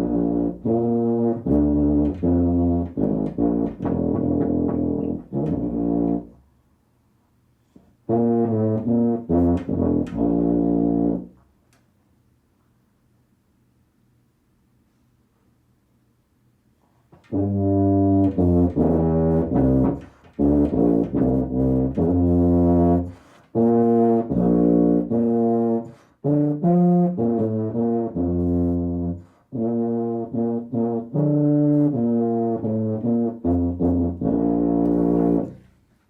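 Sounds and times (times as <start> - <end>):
tuba playing low notes: 0.0 - 6.5, 7.8 - 11.4, 17.1 - 35.7
player breathing: 23.1 - 23.5.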